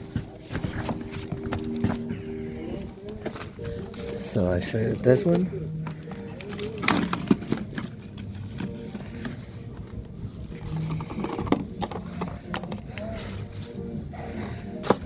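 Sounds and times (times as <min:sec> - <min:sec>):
hands handling oil filter: 0:00.0 - 0:14.1.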